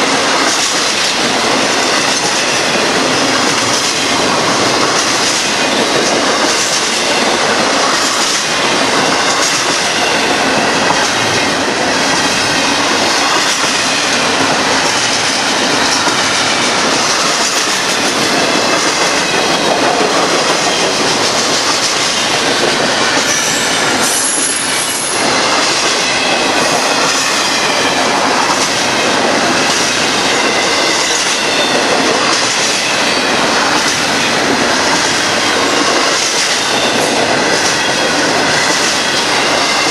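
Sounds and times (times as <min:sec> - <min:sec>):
steel train wheels rolling on rail: 0:00.0 - 0:39.9
wheel squeal: 0:23.3 - 0:25.3.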